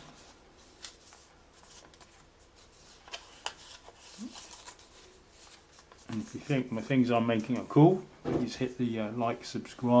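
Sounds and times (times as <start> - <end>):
paper rustling and crinkling: 0.0 - 7.8.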